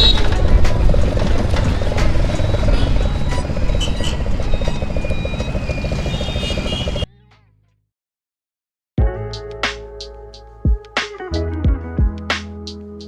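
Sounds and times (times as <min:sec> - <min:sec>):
motorcycle engine through loud exhaust: 0:00.0 - 0:07.1.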